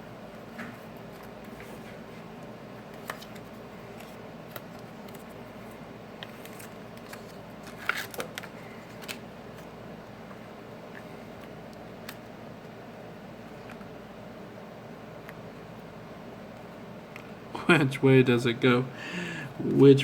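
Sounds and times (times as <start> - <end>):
low room hum: 0.0 - 20.0
plastic sheet clicks and crinkles: 6.2 - 9.7.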